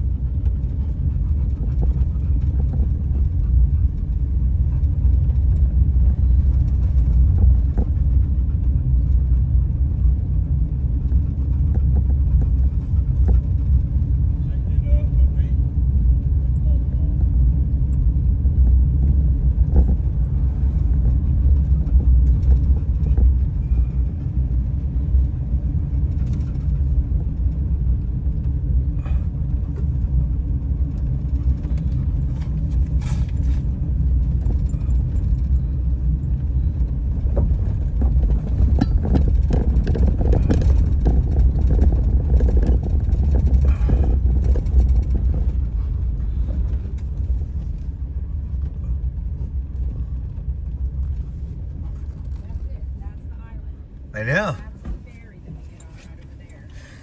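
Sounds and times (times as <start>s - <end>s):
road and engine rumble: 0.0s - 57.0s
faint clicks and rattles: 36.4s - 47.9s.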